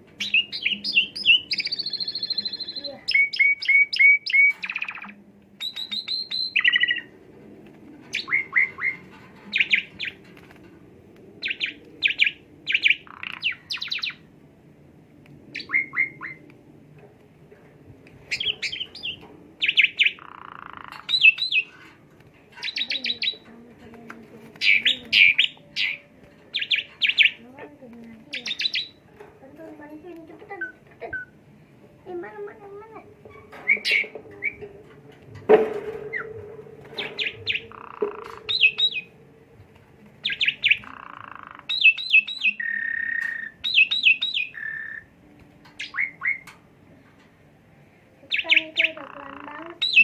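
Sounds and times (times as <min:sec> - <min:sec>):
starling chirps and whistles: 0:00.2 - 0:07.1, 0:08.2 - 0:09.0, 0:11.4 - 0:14.2, 0:15.6 - 0:16.4, 0:18.3 - 0:21.7, 0:28.4 - 0:29.0, 0:37.0 - 0:39.2, 0:40.2 - 0:45.1, 0:45.8 - 0:46.5, 0:49.8 - 0:50.0.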